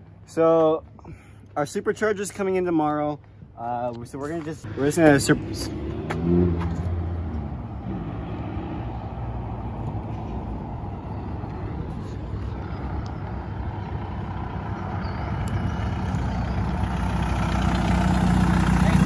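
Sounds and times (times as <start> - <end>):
car engine running: 9.7 - 19.0.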